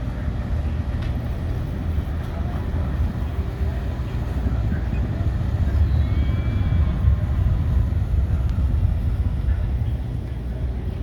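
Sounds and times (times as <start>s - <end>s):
ferry engines rumbling: 0.0s - 11.0s.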